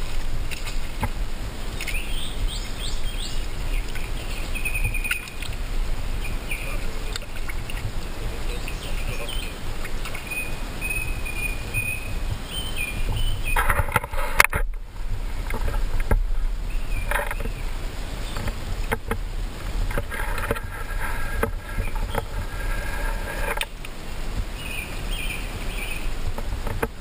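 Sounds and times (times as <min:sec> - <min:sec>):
birds chirping: 0:00.6 - 0:14.7, 0:15.4 - 0:27.0.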